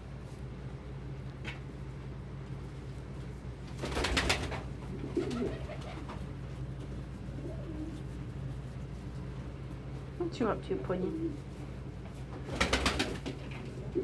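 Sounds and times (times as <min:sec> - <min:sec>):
steady low hum: 0:00.0 - 0:14.0
pigeons cooing: 0:04.9 - 0:06.2, 0:07.4 - 0:08.0.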